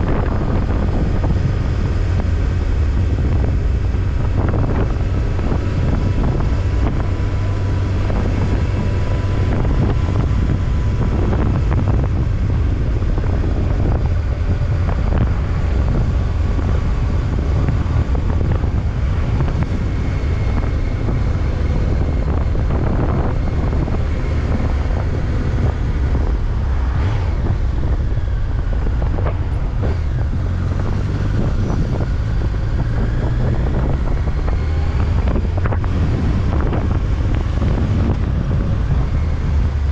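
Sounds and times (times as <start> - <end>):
motorcycle engine: 0.0 - 39.9
road noise: 0.0 - 39.9
wind rushing over microphone: 0.0 - 39.9.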